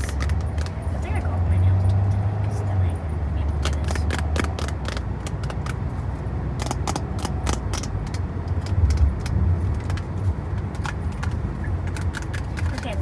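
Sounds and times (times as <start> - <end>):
fingernails clicking on plastic packaging: 0.0 - 0.8, 3.6 - 5.8, 6.6 - 13.0
steady low rumble: 0.0 - 13.0.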